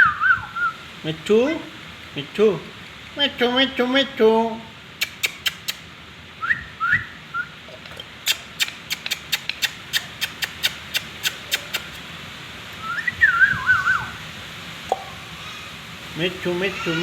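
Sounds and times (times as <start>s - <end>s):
parrot whistling: 0.0s - 0.8s, 8.2s - 12.0s, 12.8s - 14.2s
sharp clicks: 8.3s - 12.0s.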